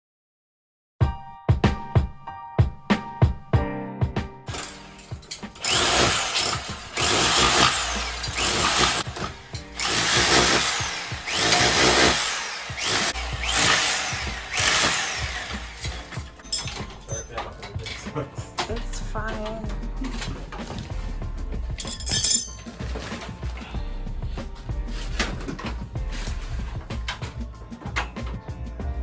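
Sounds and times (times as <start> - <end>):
power drill running: 4.5 - 16.5.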